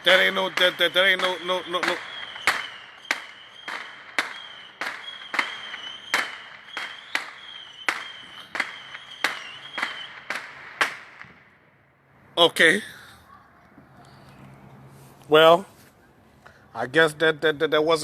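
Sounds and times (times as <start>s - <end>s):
high wavering whistle: 0.0s - 10.2s
firecracker bangs: 0.0s - 11.6s.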